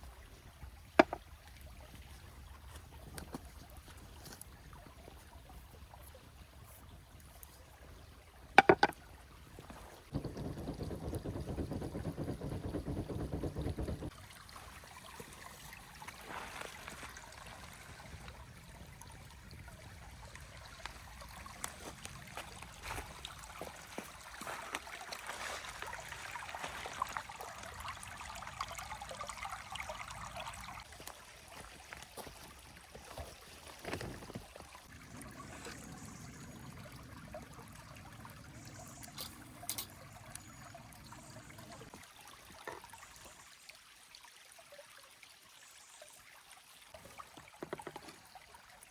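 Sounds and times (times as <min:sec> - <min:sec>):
water trickling: 0:00.0 - 0:48.9
clicks and knocks: 0:01.0 - 0:01.2, 0:08.6 - 0:09.0, 0:10.1 - 0:14.1.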